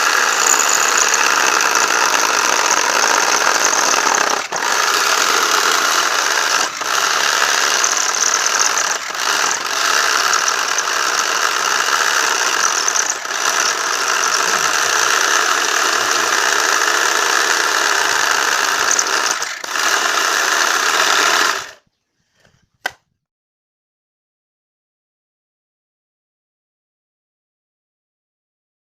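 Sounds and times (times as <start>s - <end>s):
jigsaw running: 0.0s - 21.8s.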